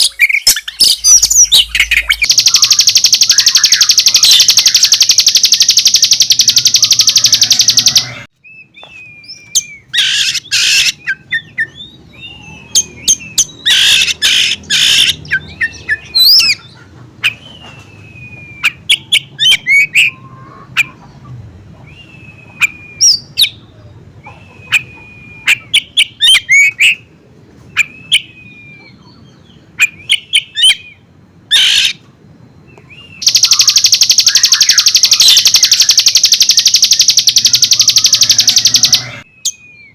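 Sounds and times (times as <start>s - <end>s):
fast bird trill: 0.0s - 8.3s, 9.3s - 17.8s, 33.1s - 39.9s
bird song with whistles: 0.0s - 16.6s, 17.2s - 20.2s, 21.9s - 23.6s, 24.3s - 27.0s, 27.7s - 29.2s, 29.8s - 31.0s, 32.7s - 39.9s.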